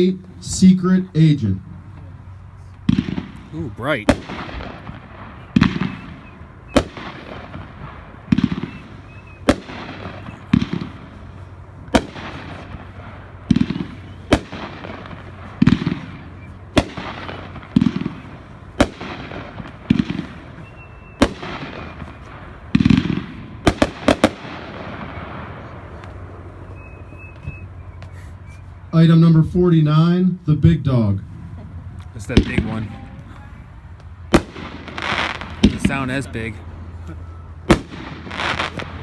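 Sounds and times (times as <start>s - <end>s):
firework bang overhead: 2.9s - 28.2s, 32.2s - 33.2s, 34.3s - 36.6s, 37.7s - 39.0s.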